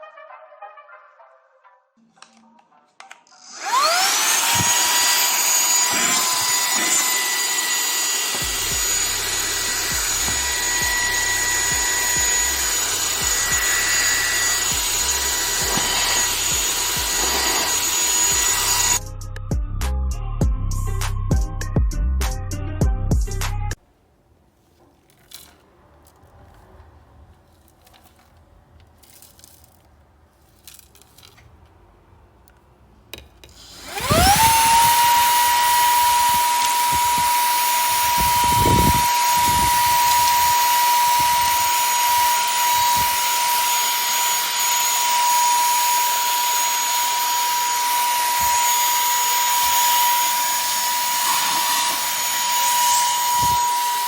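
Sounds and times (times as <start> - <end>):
handheld vacuum whining: 3.3 - 19.0, 33.4 - 54.0.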